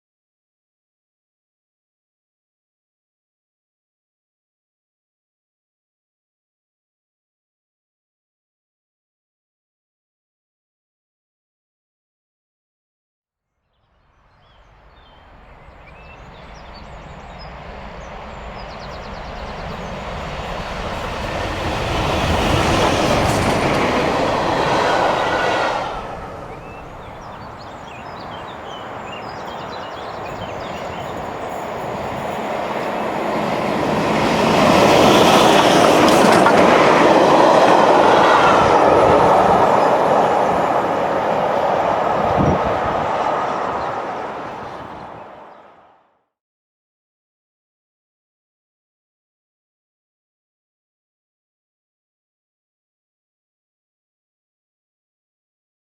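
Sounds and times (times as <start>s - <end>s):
steam locomotives passing: 14.6s - 45.8s
wheels clattering on rails: 18.3s - 25.4s, 26.5s - 45.1s.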